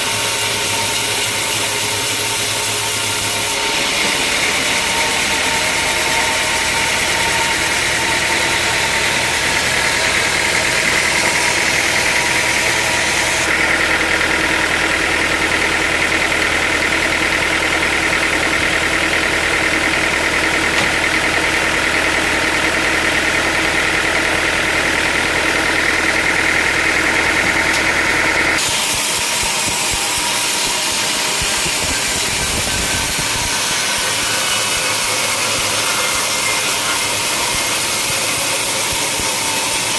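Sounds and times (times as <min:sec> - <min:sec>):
motor hum: 0:00.0 - 0:39.9
sawmill machinery whine: 0:00.0 - 0:39.9.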